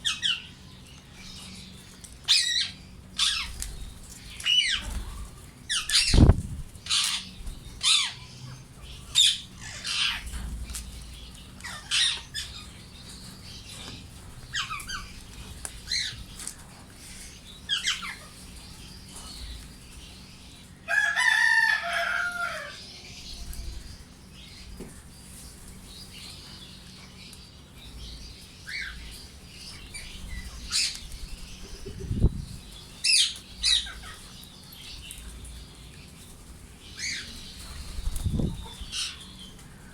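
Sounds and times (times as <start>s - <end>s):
parakeets screeching: 2.3s - 3.6s, 4.4s - 5.1s, 5.7s - 10.5s, 11.6s - 12.8s, 14.5s - 15.2s, 17.7s - 18.3s, 33.0s - 34.4s.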